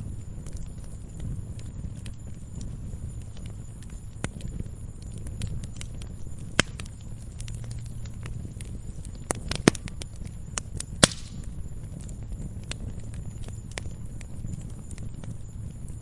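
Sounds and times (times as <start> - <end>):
low rumble of burning: 0.0 - 16.0
wood fire crackling: 0.0 - 16.0.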